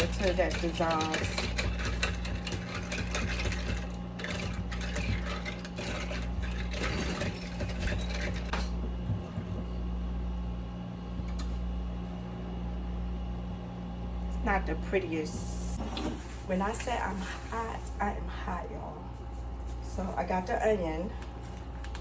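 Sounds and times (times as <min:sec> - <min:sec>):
spoon stirring in a cup: 0:00.0 - 0:08.7
steady low hum: 0:00.0 - 0:22.0.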